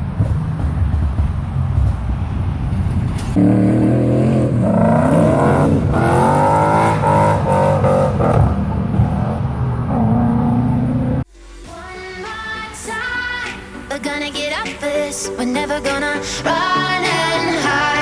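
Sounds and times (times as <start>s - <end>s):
car engine revving at full throttle: 0.0s - 11.3s.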